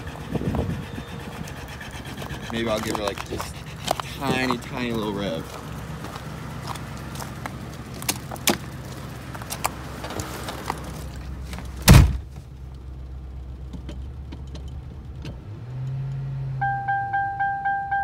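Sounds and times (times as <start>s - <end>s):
car engine idling: 0.0s - 15.5s
loud thump: 11.8s - 12.3s.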